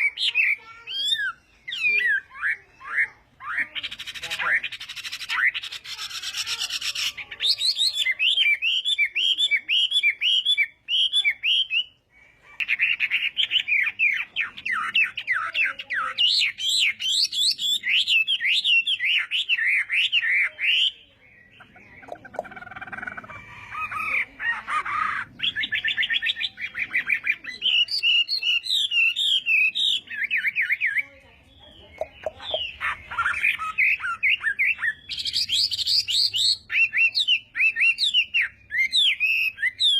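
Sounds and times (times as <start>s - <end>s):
bird singing whistled notes: 6.8s - 12.0s, 25.4s - 31.1s, 31.7s - 39.9s.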